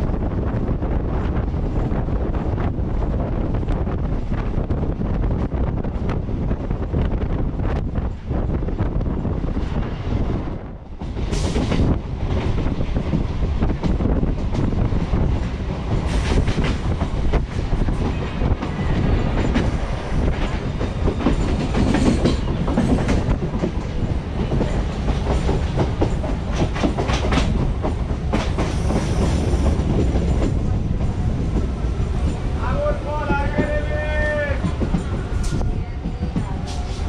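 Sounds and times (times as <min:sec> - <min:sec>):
train wheels rumbling on track: 0:00.0 - 0:37.0
wheels clacking over rail joints: 0:11.0 - 0:37.0.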